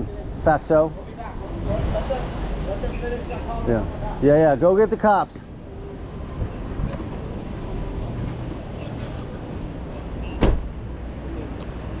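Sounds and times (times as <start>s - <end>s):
vehicle low rumble: 5.5s - 12.0s
car door slamming: 10.3s - 10.8s.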